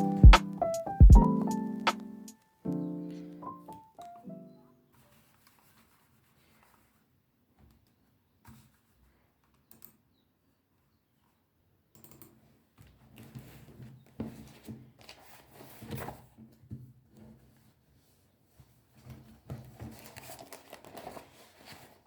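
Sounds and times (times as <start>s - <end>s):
packaging rustling and crinkling: 19.6s - 22.0s.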